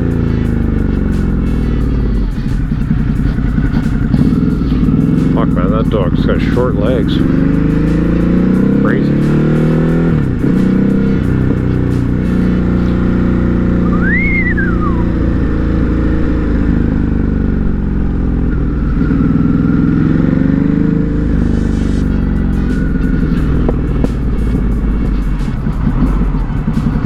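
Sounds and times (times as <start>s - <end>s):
motorcycle engine revving: 0.0s - 27.0s
brief high tone: 13.8s - 15.1s.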